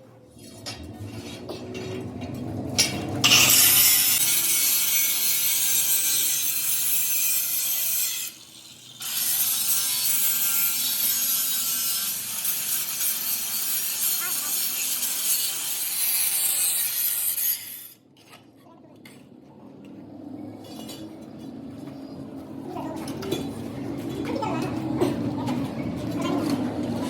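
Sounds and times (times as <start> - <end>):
power tool rasping on metal: 3.2 - 18.0.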